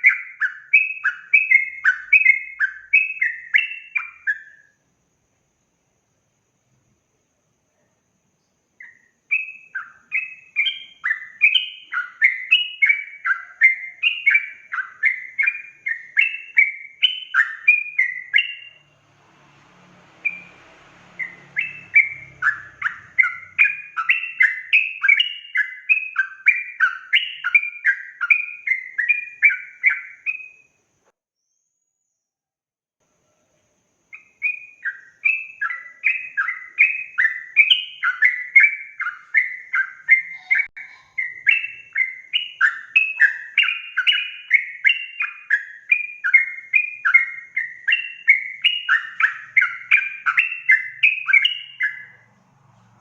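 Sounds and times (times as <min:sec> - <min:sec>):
bird singing bubbly chirps: 0:00.0 - 0:04.7, 0:08.8 - 0:19.0, 0:21.2 - 0:30.6, 0:34.1 - 0:52.2.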